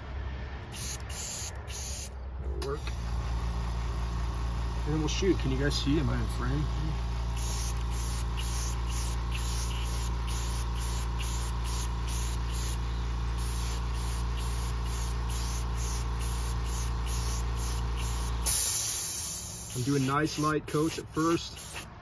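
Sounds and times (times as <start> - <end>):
air compressor humming: 0.6 - 22.0
airbrush spraying in hissing bursts: 0.7 - 2.1, 7.3 - 22.0.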